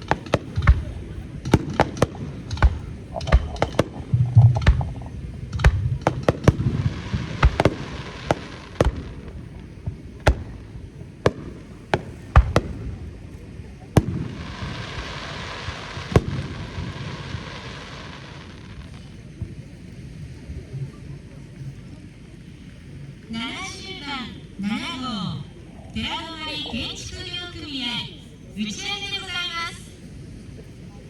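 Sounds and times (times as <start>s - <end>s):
fireworks hissing: 0.0s - 20.2s
fireworks bursting: 0.0s - 20.3s.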